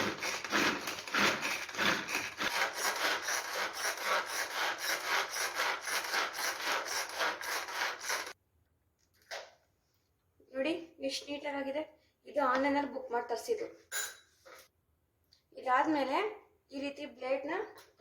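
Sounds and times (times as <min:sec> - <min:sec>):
onion chopper rasping strokes: 0:00.0 - 0:08.4.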